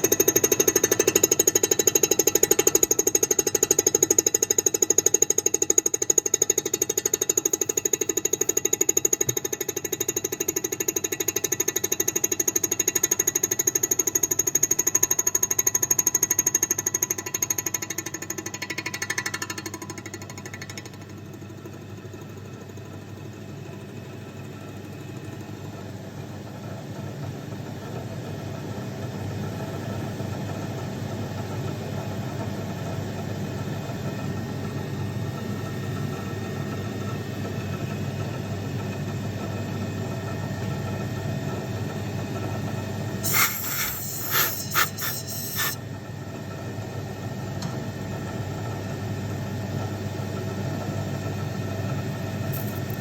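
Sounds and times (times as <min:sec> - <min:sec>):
milling machine cutting: 0:43.2 - 0:45.8
short harsh bursts: 0:43.2 - 0:45.8.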